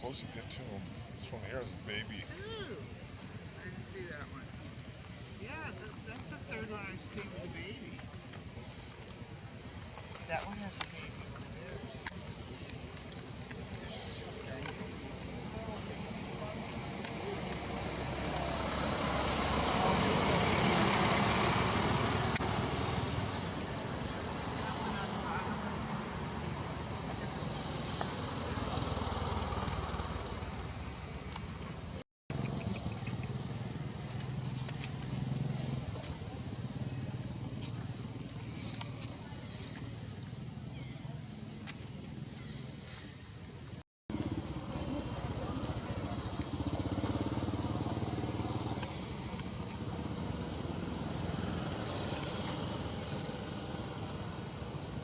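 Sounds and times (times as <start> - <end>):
engine running with low hum: 12.2 - 24.8, 25.5 - 42.5, 43.5 - 55.0.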